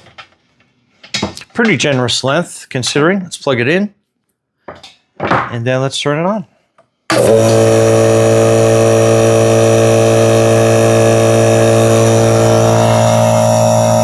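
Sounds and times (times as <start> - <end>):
air compressor running: 7.1 - 14.0.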